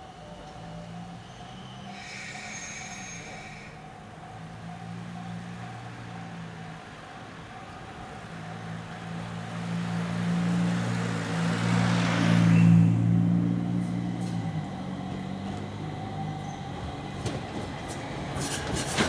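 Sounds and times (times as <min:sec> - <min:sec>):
vehicle passing by: 0:09.0 - 0:16.4.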